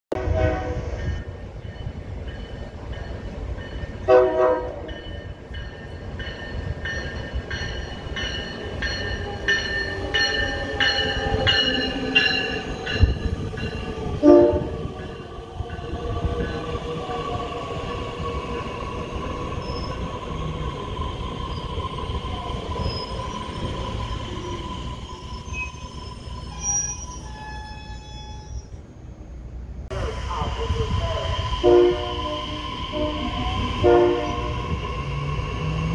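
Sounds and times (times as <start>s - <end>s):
train horn blasts: 0.1s - 1.1s, 4.0s - 4.9s, 14.2s - 14.9s, 26.6s - 28.7s, 31.6s - 34.7s
train braking whine: 19.0s - 28.9s, 30.0s - 35.9s.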